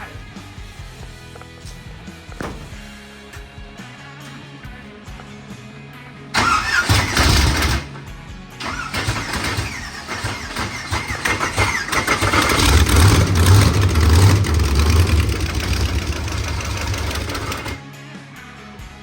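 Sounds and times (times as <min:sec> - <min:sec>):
car engine cranking and running: 0:06.4 - 0:17.8.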